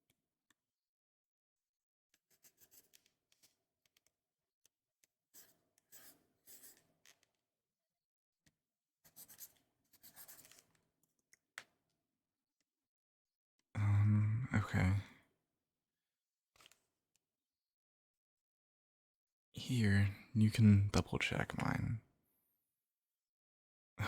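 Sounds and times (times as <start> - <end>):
faint scribbling on paper: 2.2 - 3.5, 5.4 - 7.2, 9.0 - 10.8.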